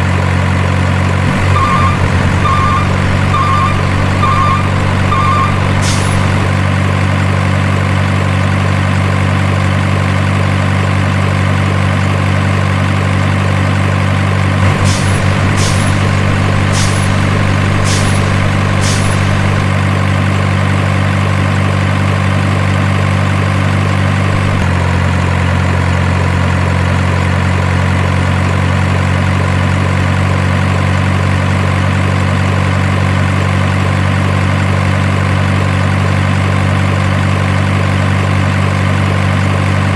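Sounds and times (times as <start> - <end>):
diesel truck engine idling: 0.2 - 24.8.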